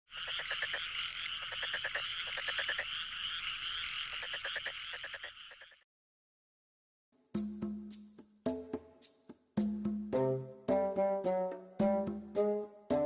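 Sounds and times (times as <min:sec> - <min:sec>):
frogs croaking and chirping: 0:00.1 - 0:05.8.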